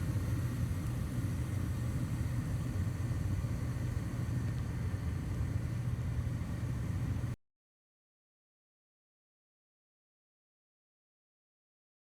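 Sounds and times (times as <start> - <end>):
gas furnace humming: 0.0 - 7.4.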